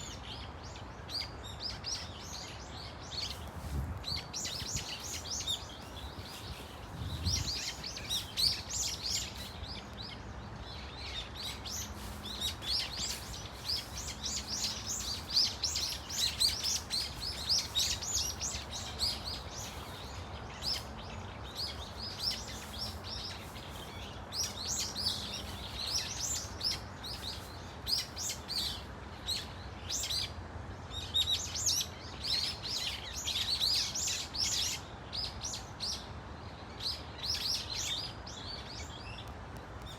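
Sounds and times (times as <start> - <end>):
flock of birds calling shrilly: 10.8 - 30.4.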